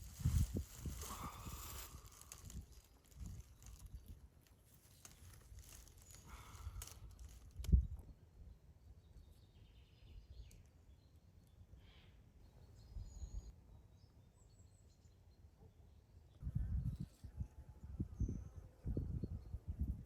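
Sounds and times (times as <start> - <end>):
faint bird chirps: 9.0 - 19.6.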